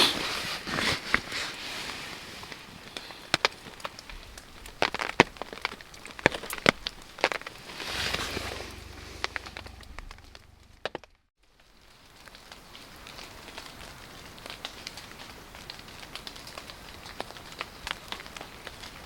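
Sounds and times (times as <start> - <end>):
campfire crackling and popping: 0.2 - 11.0.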